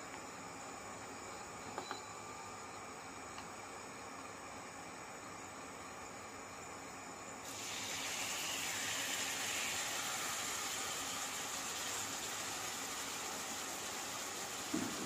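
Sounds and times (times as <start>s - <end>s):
chicken sizzling in hot oil: 7.4s - 15.0s.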